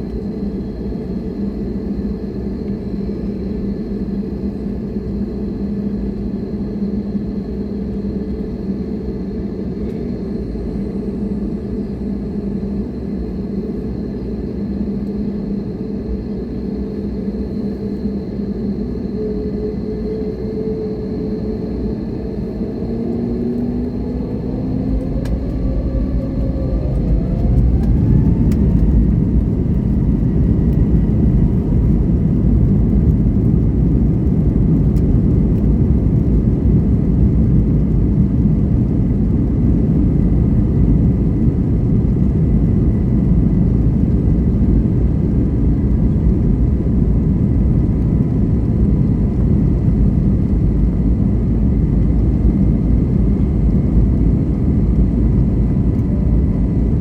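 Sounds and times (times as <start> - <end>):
jet engines spooling up: 7.1 - 36.3.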